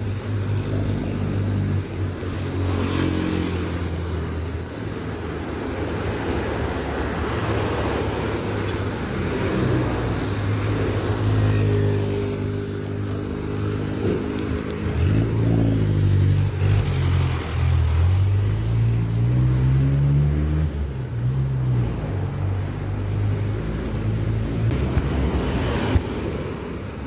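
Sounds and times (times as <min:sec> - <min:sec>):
road and wind noise: 0:00.0 - 0:27.0
vehicle engine accelerating: 0:13.6 - 0:26.4.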